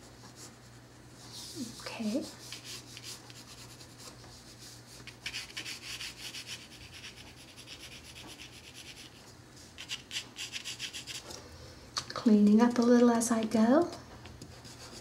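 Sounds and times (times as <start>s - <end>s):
pencil sketching on paper: 1.3s - 9.2s, 14.5s - 15.0s.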